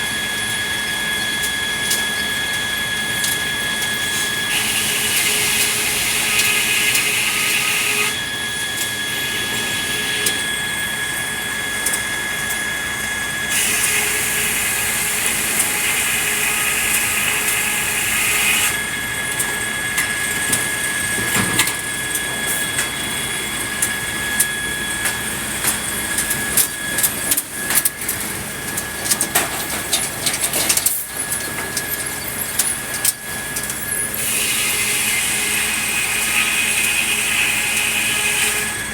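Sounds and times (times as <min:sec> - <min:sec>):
saw cutting wood: 0:04.1 - 0:08.3, 0:09.0 - 0:10.6, 0:13.5 - 0:19.0, 0:34.1 - 0:38.9.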